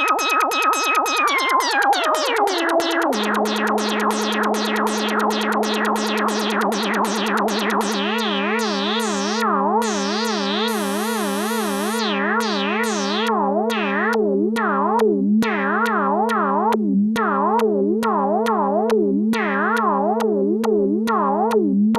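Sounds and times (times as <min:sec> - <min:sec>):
synthesizer music: 0:00.0 - 0:14.1.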